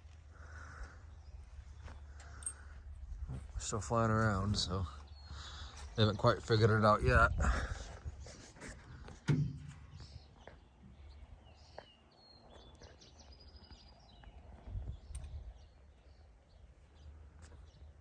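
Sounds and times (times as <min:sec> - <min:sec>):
small birds chirping: 0:00.0 - 0:18.0
thump: 0:09.2 - 0:09.8.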